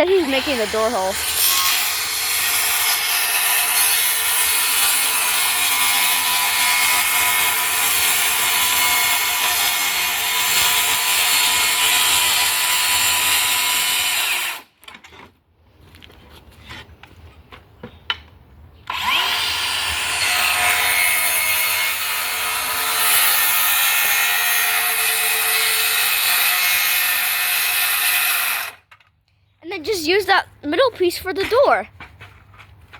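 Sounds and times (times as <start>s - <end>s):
power saw cutting plywood: 0.0s - 14.7s, 18.9s - 28.8s.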